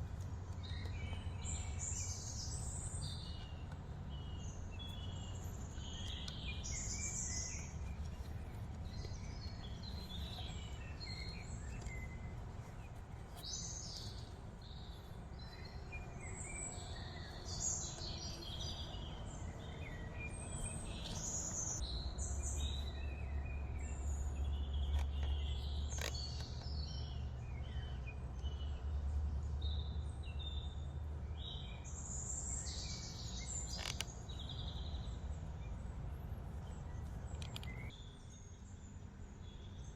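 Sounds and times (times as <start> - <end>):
wild birds chirping and calling: 0.7 - 28.0, 32.2 - 35.2.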